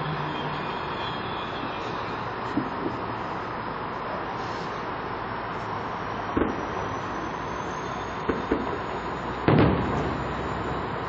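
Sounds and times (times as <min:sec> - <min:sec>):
distant fireworks bangs: 0:06.3 - 0:06.9, 0:08.2 - 0:11.0.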